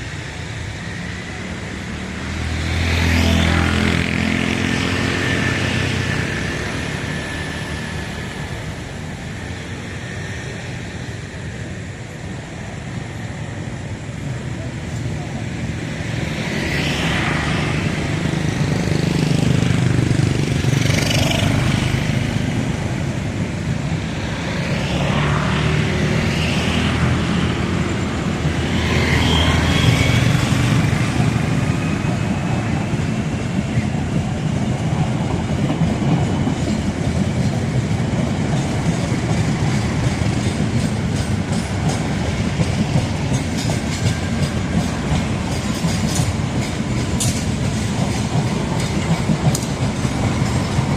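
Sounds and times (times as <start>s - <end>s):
train wheels clicking over rail joints: 26.2s - 50.9s.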